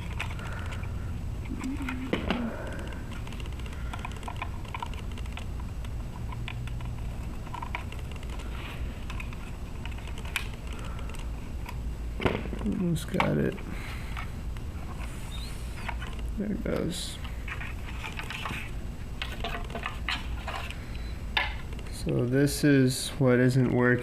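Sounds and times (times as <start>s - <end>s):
plastic parts clicking and tapping: 0.0s - 13.5s, 15.8s - 20.8s
steady low hum: 0.0s - 24.0s.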